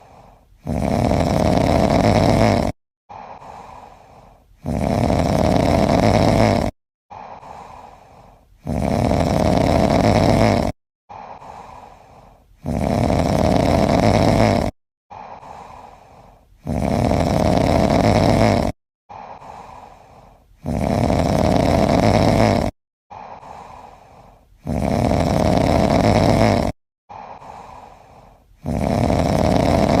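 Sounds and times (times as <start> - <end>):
loud rumbling snore: 0.6 - 2.8, 4.6 - 6.8, 8.6 - 10.8, 12.6 - 15.8, 16.6 - 19.6, 20.6 - 23.8, 24.6 - 26.8, 28.6 - 30.0
breath out: 3.1 - 4.8, 7.1 - 8.9, 27.1 - 29.0.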